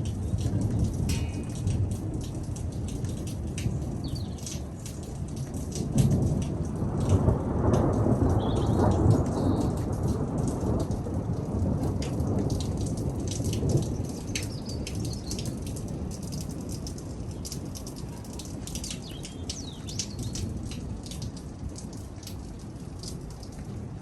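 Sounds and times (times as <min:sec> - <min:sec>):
rolling thunder: 0:00.0 - 0:04.2, 0:05.6 - 0:15.1
raindrops pattering: 0:00.0 - 0:24.0.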